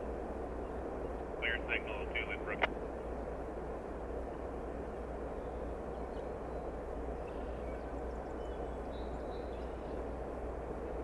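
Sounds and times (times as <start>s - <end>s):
faint bird chirps: 5.3s - 10.2s.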